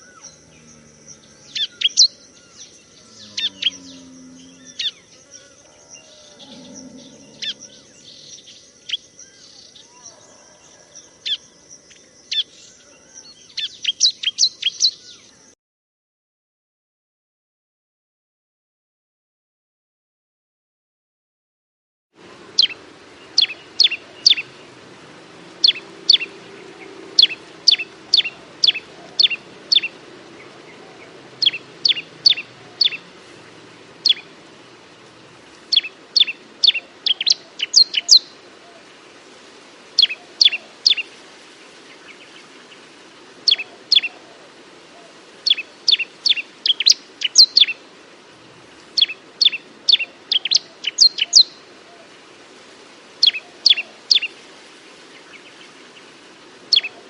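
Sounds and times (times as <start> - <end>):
bird singing sharp descending notes: 0.0 - 8.6, 25.6 - 33.0.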